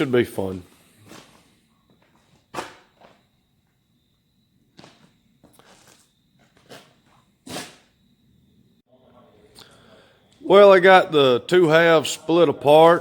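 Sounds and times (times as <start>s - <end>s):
handling knocks and scuffs: 1.0s - 3.4s, 4.7s - 7.8s.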